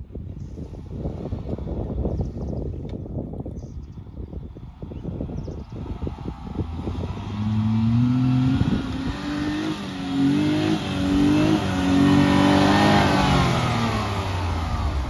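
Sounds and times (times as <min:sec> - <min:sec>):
car engine revving hard: 0:06.0 - 0:15.0.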